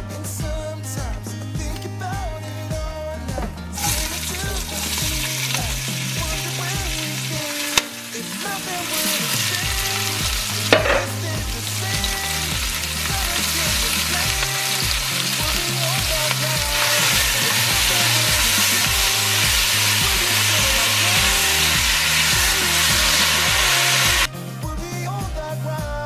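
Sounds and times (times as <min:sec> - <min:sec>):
vegetables clattering into pot: 0:03.4 - 0:20.4
vegetables sizzling in hot oil: 0:03.8 - 0:24.3.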